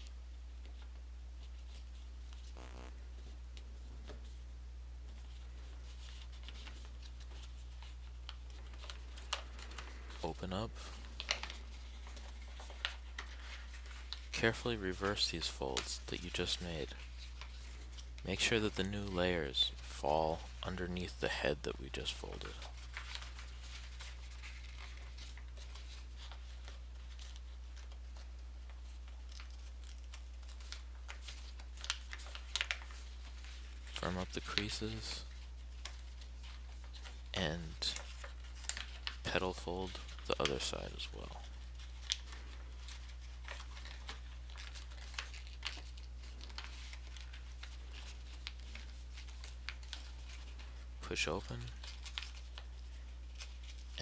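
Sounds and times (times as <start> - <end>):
paper rustling and crinkling: 0.0 - 4.4, 5.0 - 54.0
steady low hum: 0.0 - 39.3
low hum: 2.5 - 3.8.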